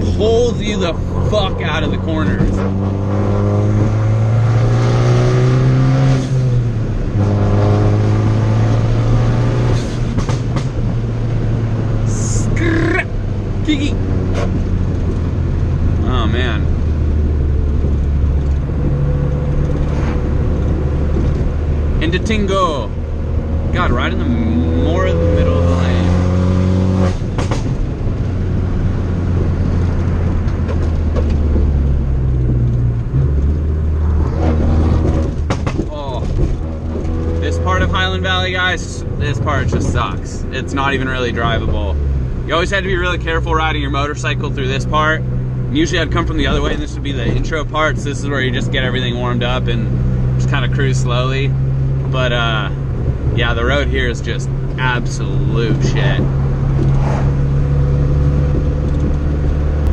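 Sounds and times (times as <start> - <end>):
exhaust pops: 0.0 - 4.8, 6.1 - 24.3, 24.9 - 59.9
car engine under load: 0.0 - 59.9
low road rumble: 0.0 - 59.9.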